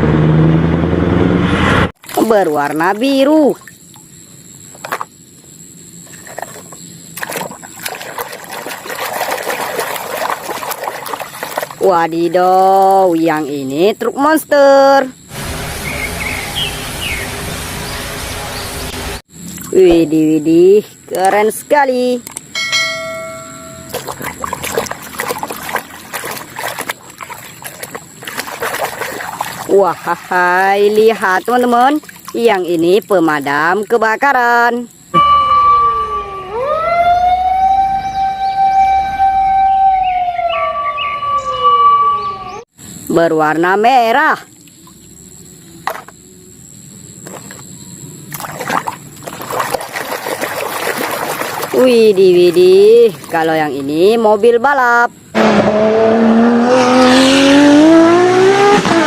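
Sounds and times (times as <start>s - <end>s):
water splashing and trickling: 2.0s - 5.1s, 6.0s - 13.8s, 19.4s - 20.0s, 22.1s - 35.0s, 43.6s - 46.2s, 47.2s - 54.6s
ringing chime note: 22.6s - 24.0s, 35.2s - 36.6s.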